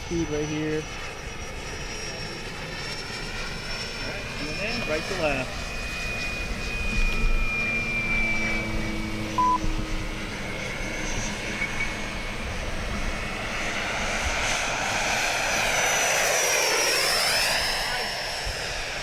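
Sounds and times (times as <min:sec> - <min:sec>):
short electronic beep: 0:09.4 - 0:09.6.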